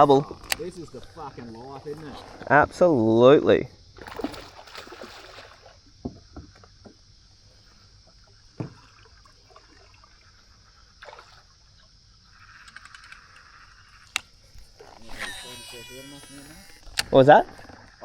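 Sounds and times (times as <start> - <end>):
high insect drone: 0.0 - 18.0
water sloshing around kayak: 3.8 - 12.6, 13.5 - 15.3.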